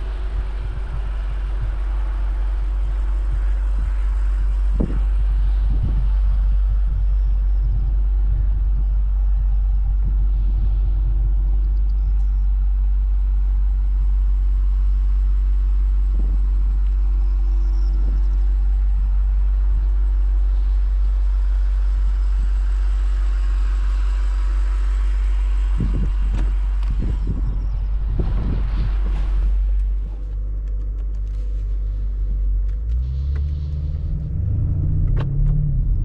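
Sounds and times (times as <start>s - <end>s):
tyre and wind hiss: 0.0s - 34.8s
car cabin engine rumble: 0.0s - 36.0s.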